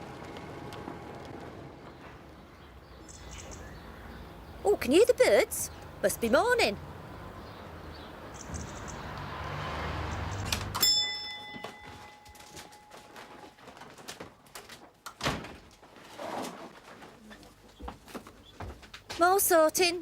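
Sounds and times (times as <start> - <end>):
metallic clang ringing: 10.8 - 13.1.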